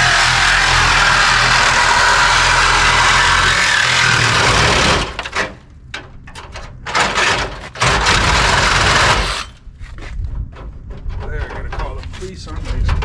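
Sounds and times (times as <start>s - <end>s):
power cutting tool running: 0.0s - 5.2s, 8.0s - 9.6s.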